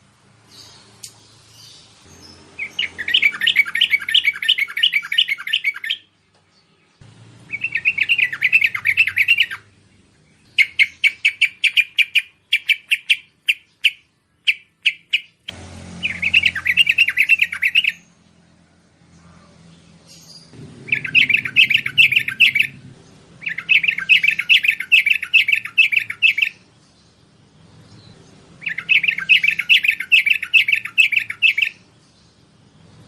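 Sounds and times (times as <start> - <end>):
bulbul chattering calls: 2.6 - 6.1, 7.5 - 9.6, 10.4 - 15.4, 16.0 - 18.1, 20.1 - 26.6, 28.6 - 31.8.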